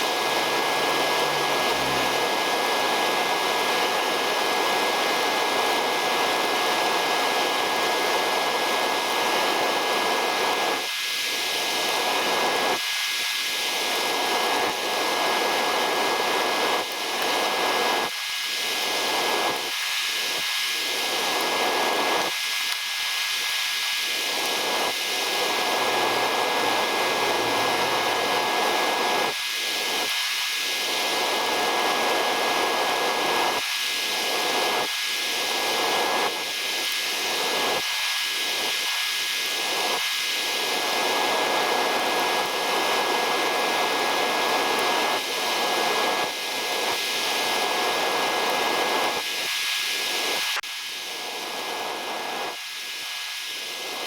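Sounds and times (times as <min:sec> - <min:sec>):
thin high whine: 0:00.0 - 0:04.0.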